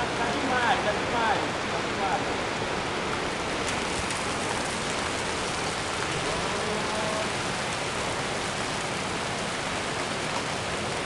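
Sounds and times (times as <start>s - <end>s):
hail and rain falling hard: 3.1s - 11.0s.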